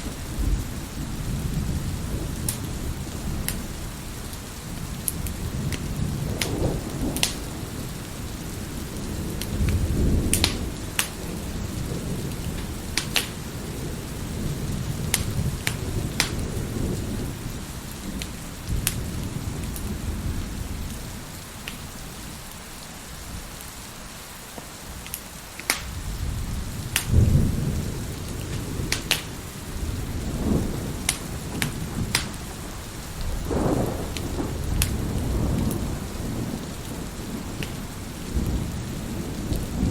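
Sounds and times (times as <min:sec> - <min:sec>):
rolling thunder: 0:00.0 - 0:22.4, 0:25.7 - 0:39.9
heavy rain: 0:00.0 - 0:39.9
wood fire crackling and popping: 0:02.3 - 0:02.8, 0:03.4 - 0:03.7, 0:04.3 - 0:16.8, 0:17.9 - 0:20.0, 0:21.6 - 0:21.8, 0:24.5 - 0:26.2, 0:26.8 - 0:27.4, 0:28.2 - 0:38.6.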